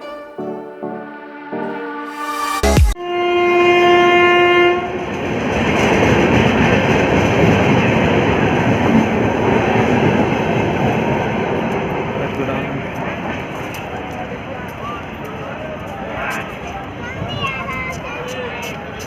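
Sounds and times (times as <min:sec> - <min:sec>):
train horn: 0:00.0 - 0:05.4
train rumbling on tracks: 0:04.6 - 0:18.9.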